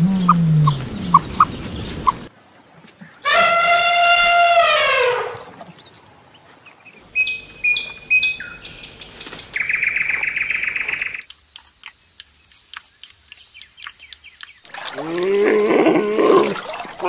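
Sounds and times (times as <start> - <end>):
bird whistled notes and chirps: 7.1 - 11.2
fast bird trill: 7.1 - 11.2.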